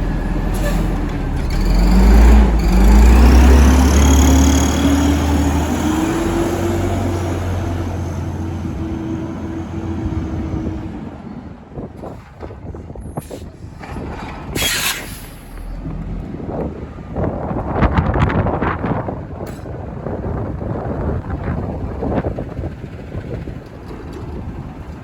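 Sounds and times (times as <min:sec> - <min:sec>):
truck engine running: 0:00.0 - 0:25.0
air hiss: 0:14.6 - 0:15.6.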